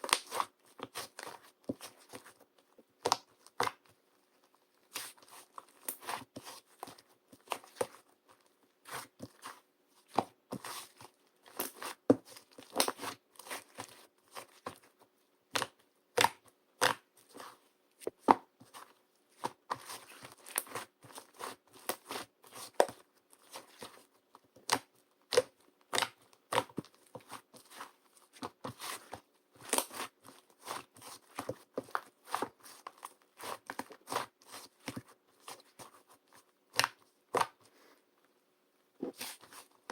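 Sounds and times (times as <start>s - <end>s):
small objects tapping and crinkling: 18.0s - 36.0s.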